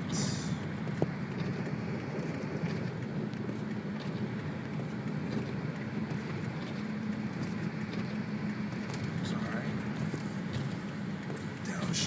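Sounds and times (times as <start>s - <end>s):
car engine and tyre drone: 0.0s - 12.0s.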